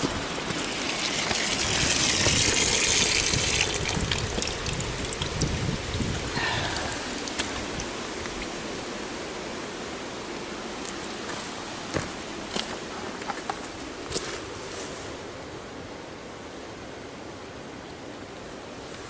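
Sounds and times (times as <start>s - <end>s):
water rushing from a tap: 0.5s - 8.0s
spits and clicks from pipes: 0.6s - 8.5s.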